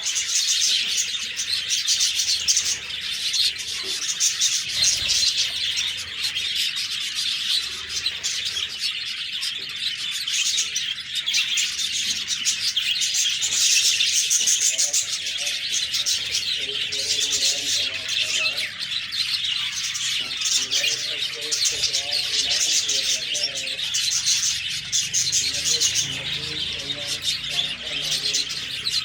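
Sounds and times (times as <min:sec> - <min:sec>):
budgerigars chirping: 0:00.0 - 0:29.0.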